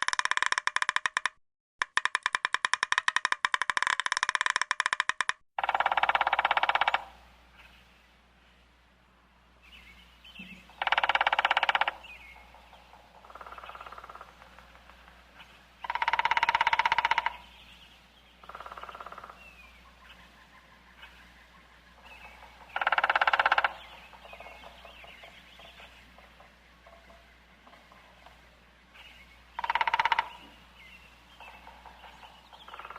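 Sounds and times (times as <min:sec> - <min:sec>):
bird calling harshly: 0:05.6 - 0:07.8, 0:10.3 - 0:15.0, 0:15.8 - 0:17.7, 0:18.4 - 0:28.2, 0:29.0 - 0:32.9
faint bird chirps: 0:09.6 - 0:32.9.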